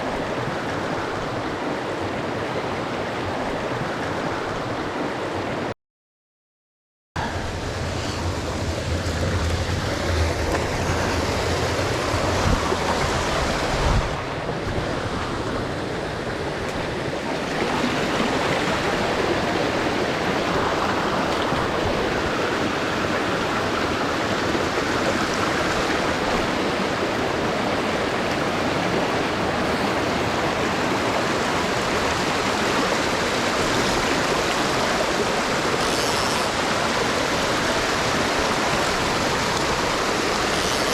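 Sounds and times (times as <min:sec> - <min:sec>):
low rumble: 0:07.2 - 0:12.7
creek rushing over rocks: 0:07.2 - 0:40.9.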